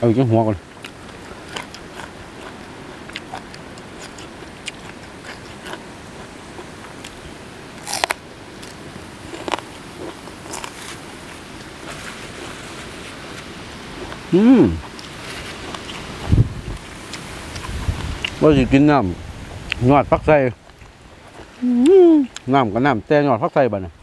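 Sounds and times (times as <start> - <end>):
chewing with wet mouth clicks: 0.8 - 7.2, 16.6 - 18.4
sharp crunches when biting: 7.8 - 11.0.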